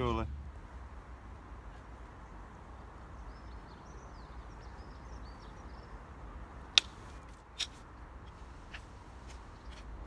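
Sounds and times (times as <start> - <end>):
low outdoor rumble: 0.0 - 7.1
small bird chirping: 2.2 - 6.1.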